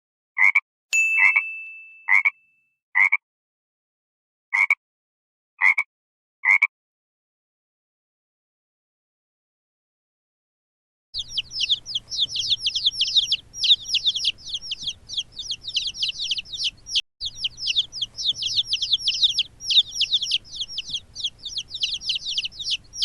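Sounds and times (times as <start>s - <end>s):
chickens calling: 11.2s - 23.0s.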